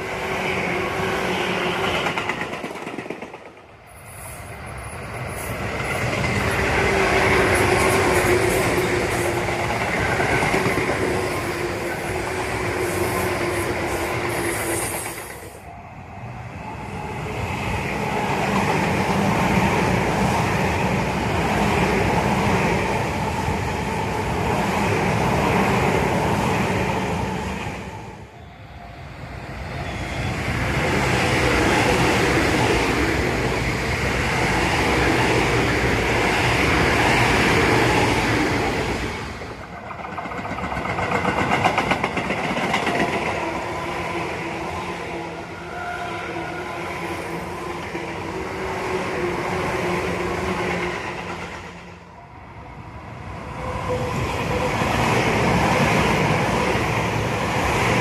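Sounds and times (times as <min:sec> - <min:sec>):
electric trains passing: 0:00.0 - 0:58.0
wheels clattering on rails: 0:39.7 - 0:43.4.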